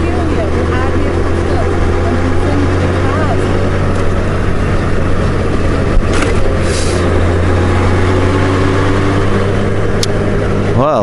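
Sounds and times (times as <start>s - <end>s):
motorcycle engine running: 0.0s - 11.0s
brief hiss: 6.6s - 7.0s.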